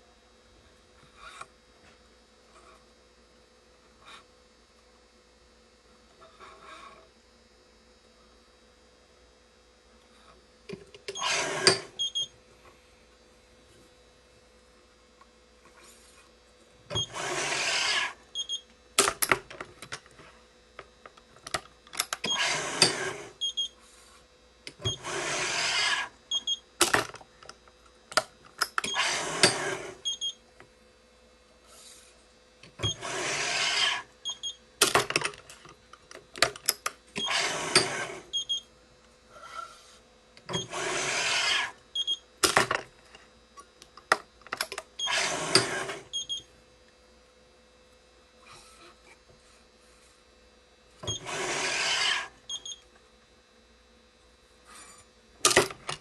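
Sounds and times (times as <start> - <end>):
stringing machine pulling: 11.0 - 12.1, 16.9 - 18.2, 22.0 - 23.4, 24.8 - 26.1, 28.7 - 30.1, 32.8 - 34.1, 37.2 - 38.4, 40.5 - 41.8, 44.6 - 46.2, 51.0 - 52.3.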